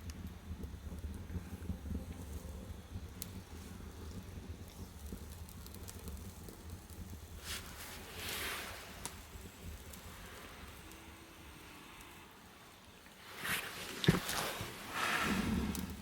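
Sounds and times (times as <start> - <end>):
firewood burning with crackles: 0.0 - 16.0
hissing rush: 7.4 - 12.4, 13.3 - 16.0.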